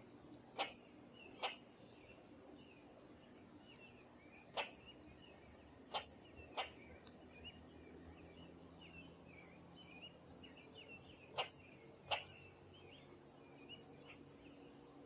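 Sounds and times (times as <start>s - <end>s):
small birds twittering: 0.0s - 15.0s.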